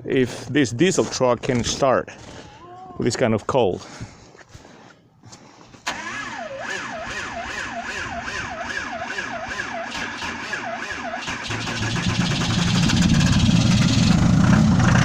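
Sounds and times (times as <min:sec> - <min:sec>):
starter motor whining: 0:05.8 - 0:14.0
diesel engine running: 0:05.9 - 0:15.0.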